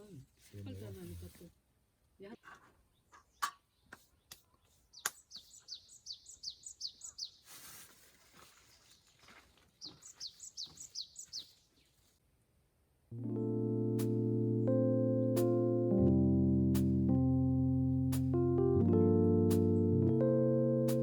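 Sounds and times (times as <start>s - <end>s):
bird singing: 2.9s - 7.5s, 8.7s - 11.9s
brief rustle: 7.4s - 12.2s
piano music: 13.1s - 21.0s.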